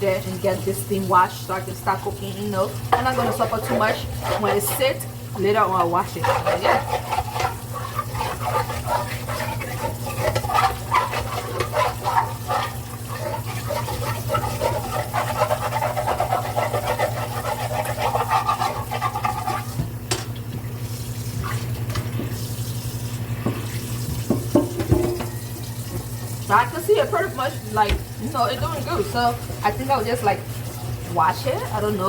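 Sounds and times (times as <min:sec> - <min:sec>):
scrubber scraping a pot: 0:01.2 - 0:19.9.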